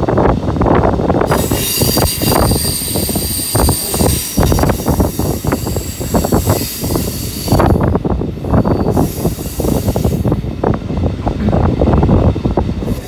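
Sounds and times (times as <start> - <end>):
train rumbling and clattering: 0.0 - 13.0
high-pitched metallic squeal: 1.3 - 7.8, 8.4 - 10.3.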